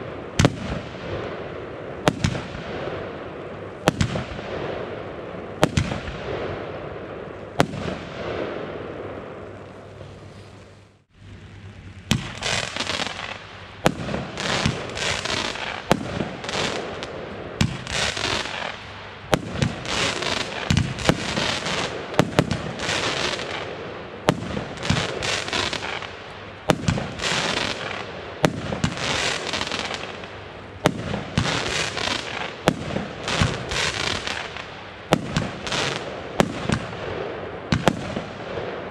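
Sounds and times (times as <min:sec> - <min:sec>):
firework bangs: 0:00.0 - 0:03.1, 0:03.8 - 0:05.0, 0:05.6 - 0:06.9, 0:12.1 - 0:38.9
firework crackling: 0:09.4 - 0:38.9.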